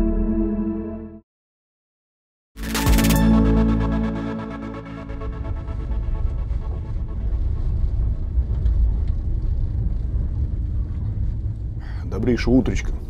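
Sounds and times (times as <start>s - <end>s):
train rumbling at speed: 5.1s - 13.0s.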